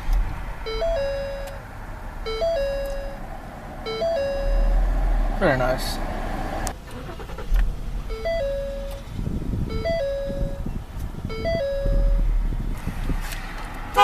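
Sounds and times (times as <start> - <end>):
car engine idling: 0.0 - 12.8
three-note dashboard warning chime: 0.7 - 1.6, 2.2 - 5.0, 8.1 - 9.0, 9.7 - 12.3.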